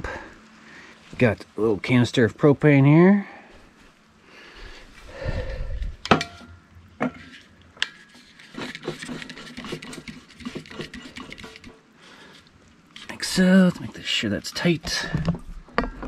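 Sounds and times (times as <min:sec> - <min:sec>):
small clicks and scraping: 0:07.0 - 0:13.4.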